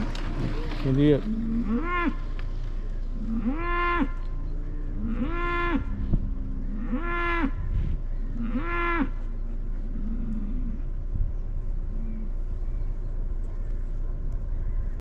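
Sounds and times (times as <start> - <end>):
steady low hum: 0.0 - 15.0
cattle mooing: 0.5 - 2.3, 3.2 - 11.0.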